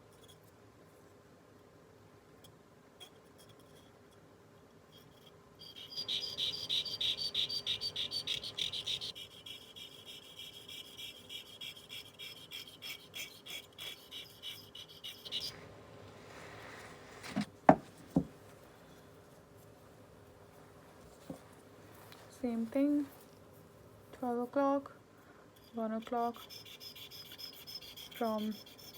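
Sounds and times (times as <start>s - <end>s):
metal scraping on sharpening stone: 4.9s - 15.6s, 25.6s - 28.9s.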